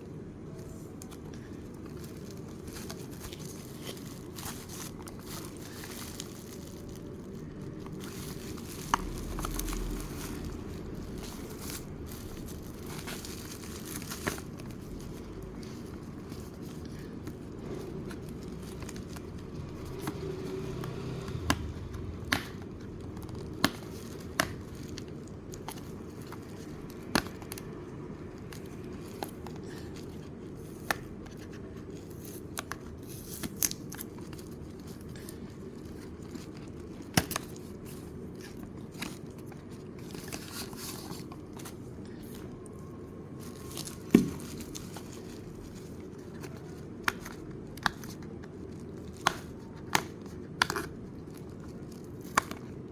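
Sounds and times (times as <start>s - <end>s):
steady low hum: 0.0s - 52.9s
wrapping crinkling and tearing: 0.4s - 52.9s
packaging clicks and taps: 1.0s - 27.7s, 43.5s - 52.9s.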